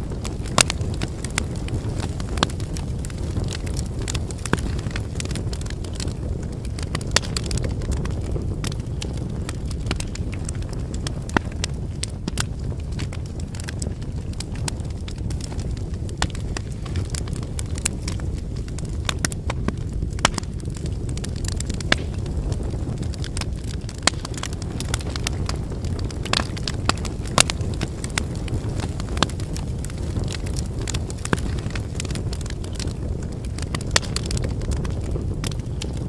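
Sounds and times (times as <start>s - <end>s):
burning logs crackling and popping: 0.0s - 36.0s
campfire flames rumbling: 0.0s - 36.0s.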